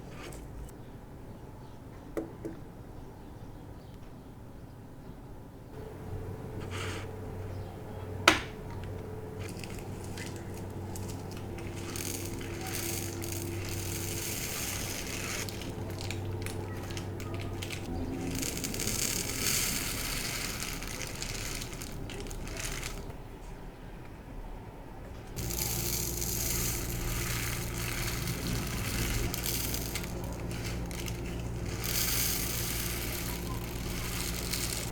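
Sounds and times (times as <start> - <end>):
packaging crackling and rustling: 9.3 - 23.2, 25.4 - 34.9.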